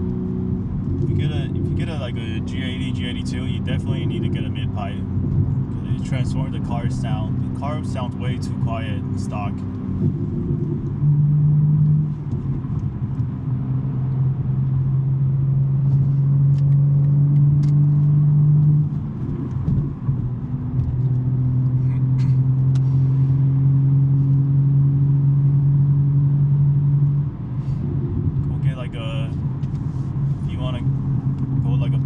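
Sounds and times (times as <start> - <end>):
car engine droning: 0.0 - 32.0.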